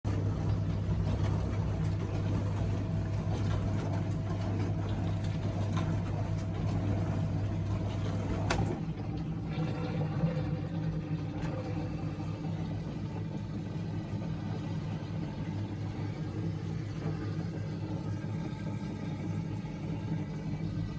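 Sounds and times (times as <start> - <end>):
dishwasher motor and pump hum: 0.0 - 20.9.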